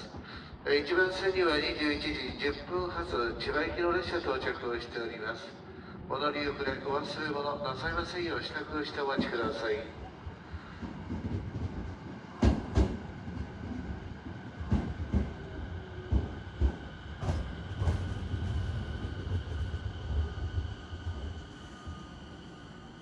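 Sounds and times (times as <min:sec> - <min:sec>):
train low rumble: 0:00.0 - 0:23.0
train wheels clacking on rail joints: 0:10.8 - 0:13.6, 0:14.6 - 0:18.5
faint high whine: 0:20.2 - 0:23.0.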